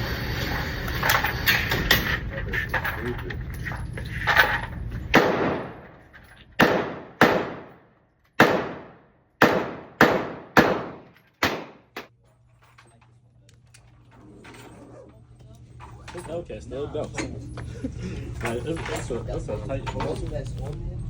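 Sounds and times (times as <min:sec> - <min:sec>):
gunshots with echoing tail: 0:05.1 - 0:05.9, 0:06.6 - 0:12.0.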